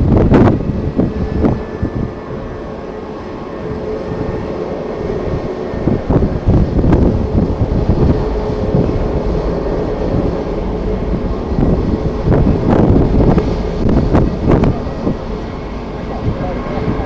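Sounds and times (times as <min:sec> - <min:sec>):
jet engines droning: 0:00.0 - 0:17.0
wind buffeting microphone: 0:00.0 - 0:17.0.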